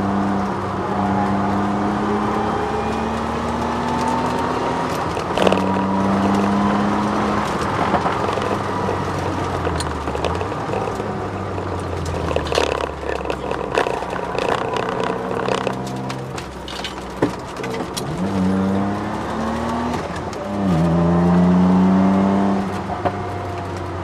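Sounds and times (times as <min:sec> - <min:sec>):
car engine pulling hard: 0:00.0 - 0:24.0
knocks and rattles in car: 0:04.8 - 0:20.5.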